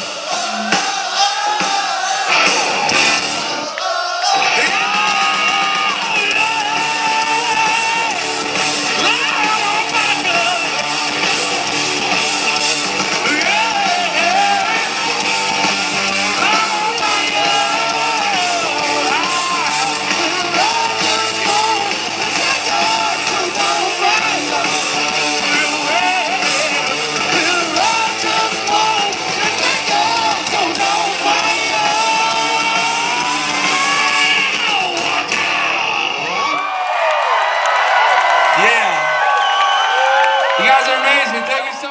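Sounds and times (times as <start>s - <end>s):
rock band playing loudly: 0.0s - 36.7s
man singing and shouting: 3.5s - 10.8s, 13.2s - 15.0s, 16.2s - 36.4s.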